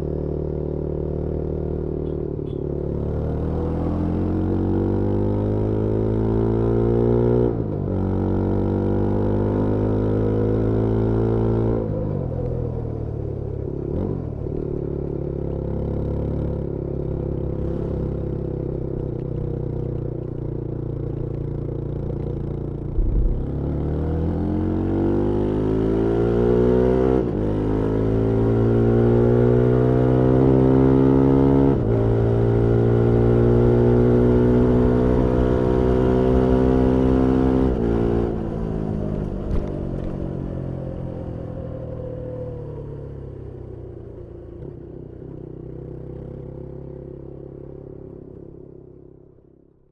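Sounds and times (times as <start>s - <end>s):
motorcycle engine shifting gears: 17.6s - 25.8s.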